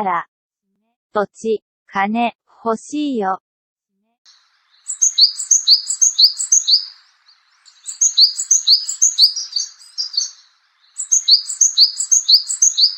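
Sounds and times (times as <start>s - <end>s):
bird singing two-note phrases: 4.9s - 12.9s.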